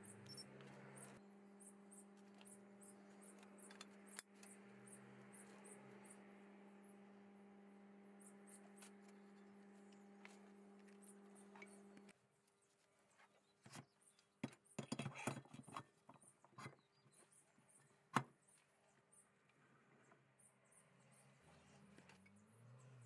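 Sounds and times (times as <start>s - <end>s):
low electrical hum: 0.0s - 12.6s.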